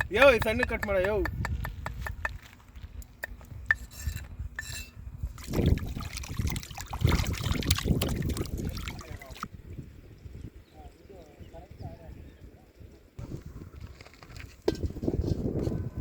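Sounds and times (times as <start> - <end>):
liquid pouring and splashing: 5.4 - 9.5.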